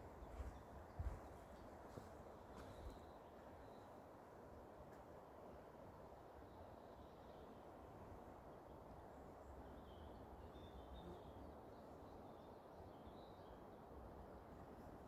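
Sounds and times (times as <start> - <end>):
outdoor background hiss: 0.0 - 15.0
faint bird chirps: 9.6 - 13.6.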